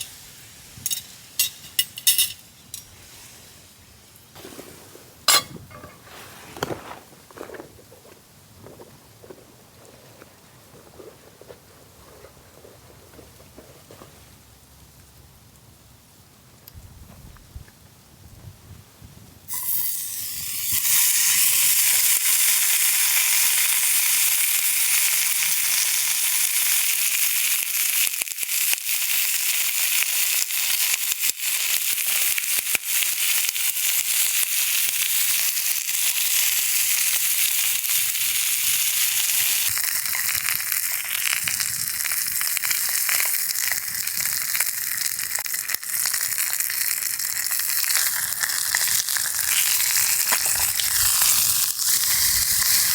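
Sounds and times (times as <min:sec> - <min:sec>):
food sizzling in a pan: 0:00.0 - 0:06.2, 0:19.5 - 0:52.9.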